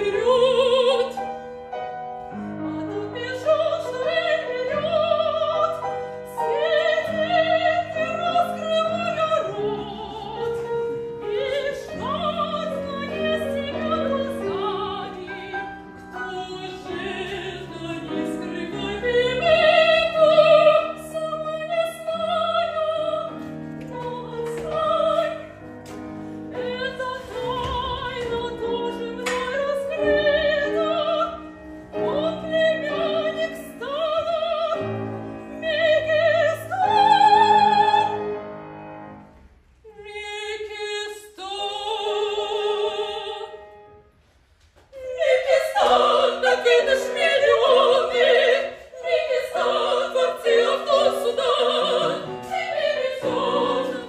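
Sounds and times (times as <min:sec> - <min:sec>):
piano accompaniment: 0:00.0 - 0:54.0
operatic singing: 0:02.6 - 0:25.8, 0:44.9 - 0:54.0.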